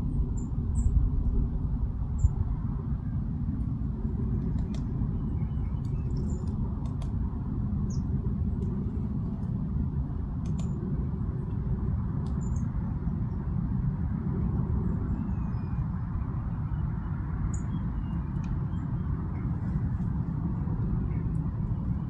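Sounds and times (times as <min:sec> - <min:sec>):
small birds chirping: 0:04.5 - 0:07.0.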